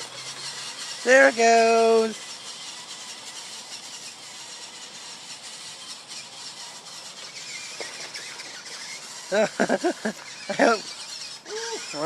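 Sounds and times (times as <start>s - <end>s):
toy truck motor whining: 0.0s - 12.0s.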